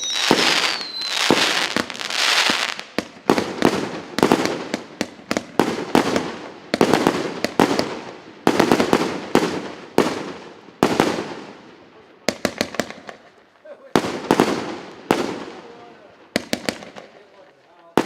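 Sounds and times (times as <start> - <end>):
firework cake firing shots: 0.0 - 11.4, 16.4 - 17.1.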